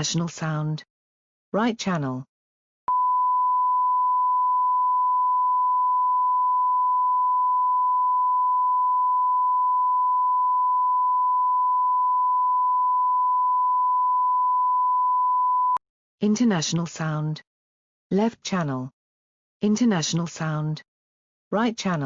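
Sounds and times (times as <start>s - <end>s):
sine-wave test tone: 2.9s - 15.8s.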